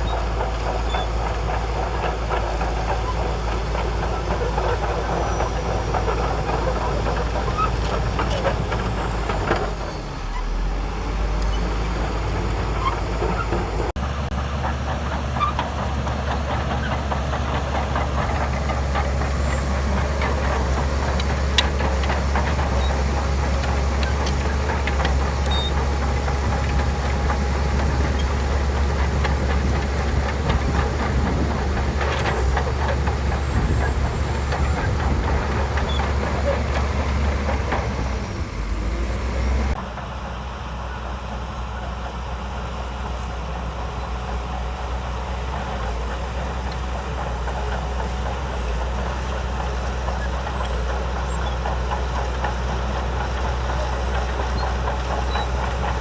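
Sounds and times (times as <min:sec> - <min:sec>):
bulldozer diesel engine under load: 0:00.0 - 0:56.0
steel tracks clattering: 0:11.6 - 0:41.8.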